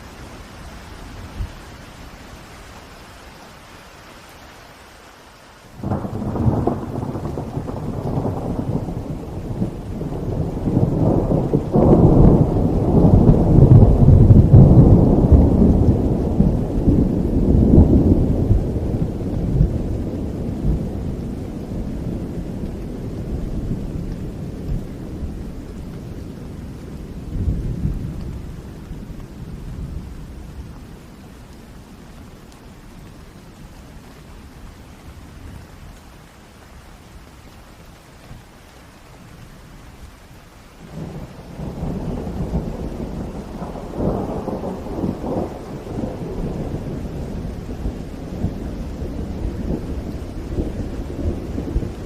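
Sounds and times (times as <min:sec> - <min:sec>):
steady rain: 0:00.0 - 0:52.0
thunder rolling: 0:05.8 - 0:25.6, 0:40.8 - 0:52.0.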